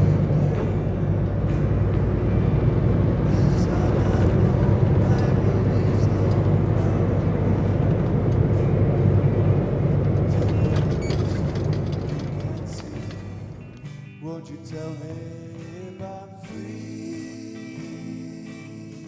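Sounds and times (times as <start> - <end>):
road noise: 0.0 - 14.2
truck diesel engine drone: 0.0 - 19.0.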